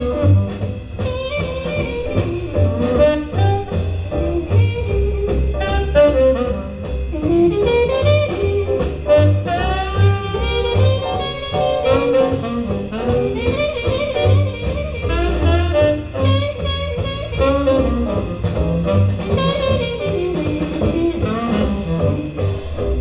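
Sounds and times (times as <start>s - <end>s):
jazz saxophone over double bass: 0.0s - 23.0s.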